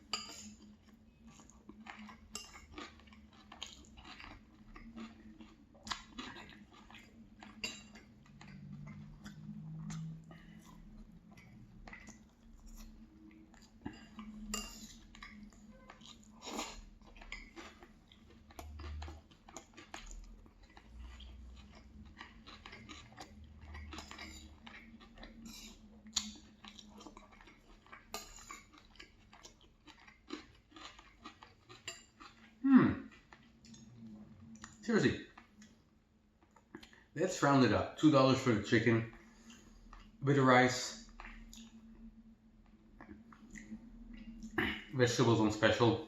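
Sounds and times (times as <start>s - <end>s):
person chewing food: 0.0s - 37.2s, 39.0s - 40.2s, 40.8s - 45.0s
cutlery clinking on plate: 14.0s - 15.0s.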